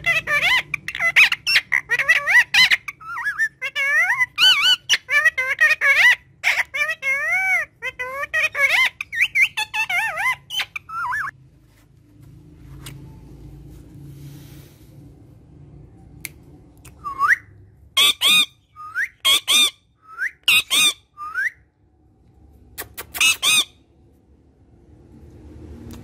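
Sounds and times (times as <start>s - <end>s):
parakeet squawks: 0.0s - 11.4s, 17.2s - 21.6s, 22.8s - 23.9s
parakeet whistles: 17.0s - 21.7s.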